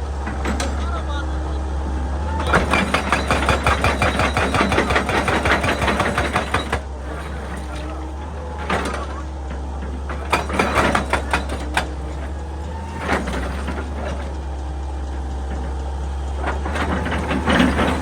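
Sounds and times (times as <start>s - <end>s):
excavator diesel engine running: 0.0s - 18.0s
sharp knocks and clanks: 2.5s - 6.9s, 8.6s - 12.1s.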